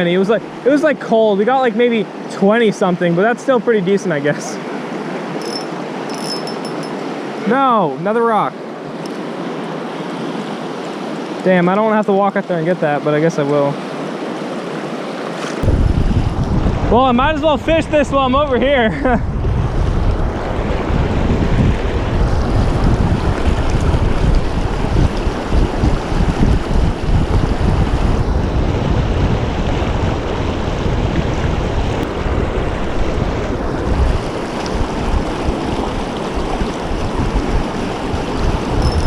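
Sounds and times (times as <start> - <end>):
fast river rushing: 0.0 - 19.0, 29.6 - 39.0
wind buffeting microphone: 15.6 - 39.0.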